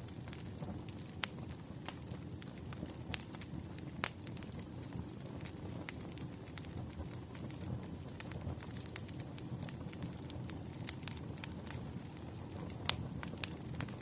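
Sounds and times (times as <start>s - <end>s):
burning logs crackling and popping: 0.0s - 14.0s
low rumble of flames: 0.0s - 14.0s.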